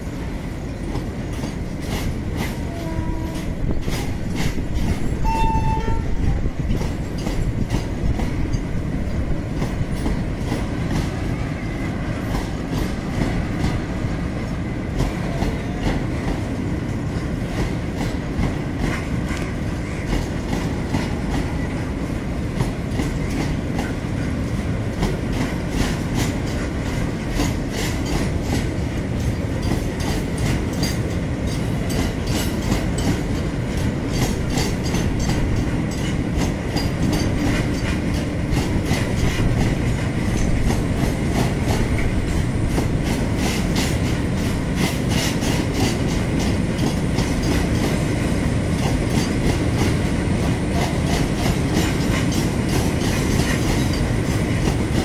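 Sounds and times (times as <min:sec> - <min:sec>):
freight train rumbling past: 0:00.0 - 0:55.0
wheels clicking over rail joints: 0:22.5 - 0:48.1, 0:48.7 - 0:55.0.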